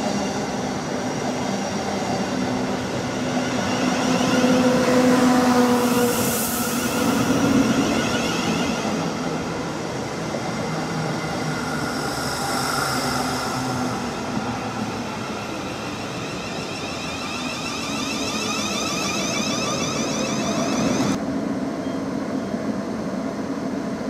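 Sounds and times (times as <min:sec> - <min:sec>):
train wheels rumbling on rails: 0:00.0 - 0:21.2
train motor whine: 0:02.0 - 0:21.2.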